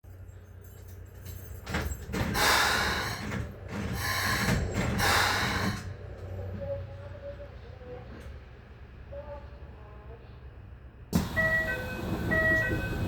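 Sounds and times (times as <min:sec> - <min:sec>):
electric train humming: 0:11.2 - 0:13.0.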